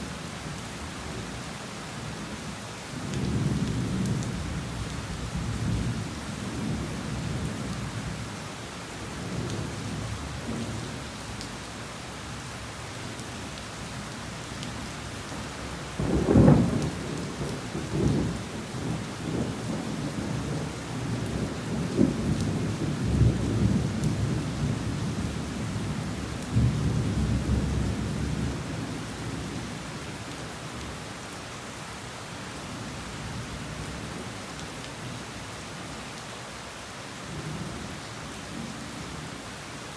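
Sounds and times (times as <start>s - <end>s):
heavy rain falling: 0.0s - 39.9s
rolling thunder rumbles: 16.0s - 25.3s.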